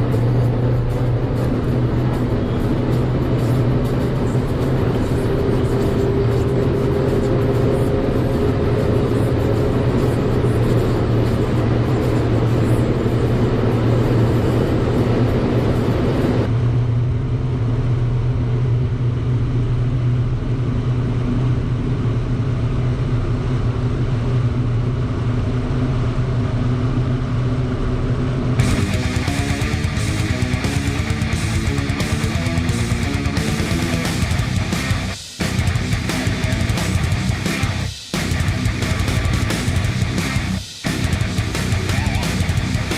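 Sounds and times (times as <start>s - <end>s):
car engine and road noise: 0.0s - 42.9s
guitar music: 28.6s - 42.9s.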